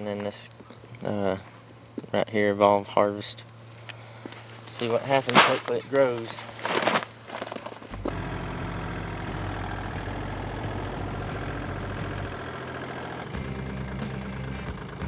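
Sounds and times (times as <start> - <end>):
engine running steadily: 3.3 - 15.0.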